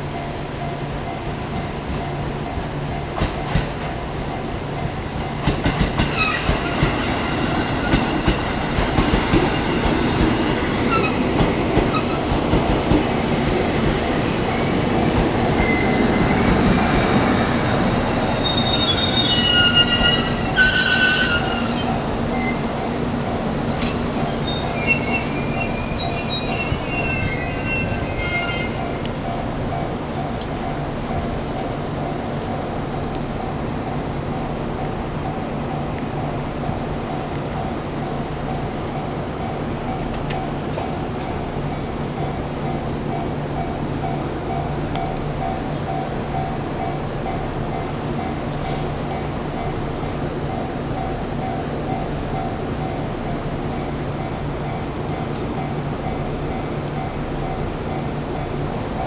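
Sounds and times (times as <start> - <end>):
wheel and brake squeals: 6.0 - 8.6, 10.6 - 12.4, 13.2 - 29.2.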